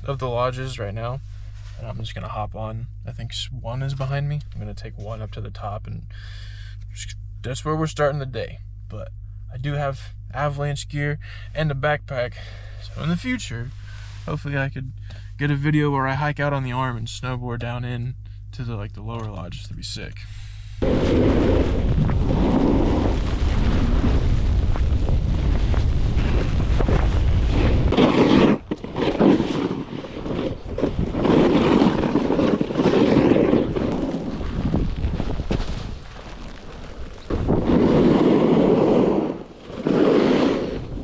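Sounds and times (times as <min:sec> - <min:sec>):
low rumble: 0:00.0 - 0:41.0
wind buffeting microphone: 0:20.8 - 0:39.6.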